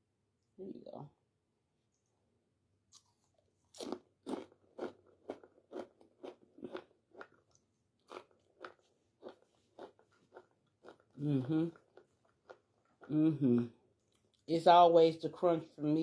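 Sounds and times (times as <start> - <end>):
crunching and chewing fried food: 2.8 - 13.3, 13.9 - 14.5.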